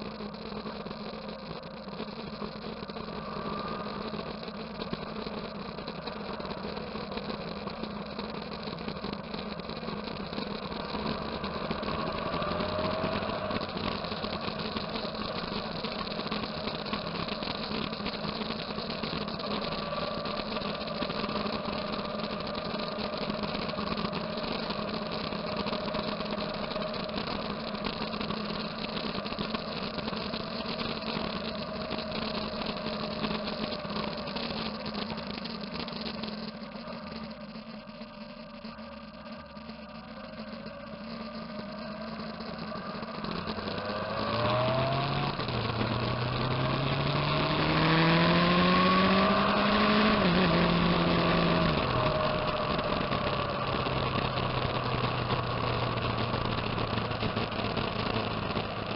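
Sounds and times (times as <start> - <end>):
faint wavering tones: 0.0 - 47.4
motorcycle engine running: 0.0 - 58.9.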